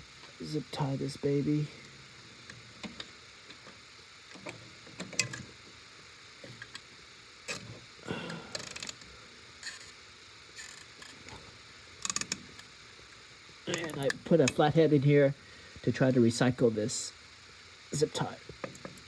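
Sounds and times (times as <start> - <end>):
zip tie ratcheting: 10.6 - 11.2, 12.0 - 12.4.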